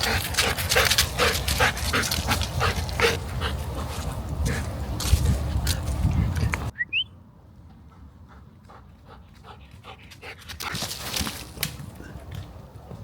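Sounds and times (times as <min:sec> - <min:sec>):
dog panting: 0:00.0 - 0:04.7.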